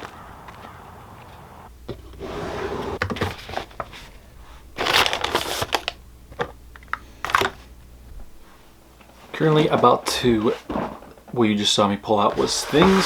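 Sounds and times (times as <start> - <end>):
paper and packaging crinkling: 3.0 - 7.8.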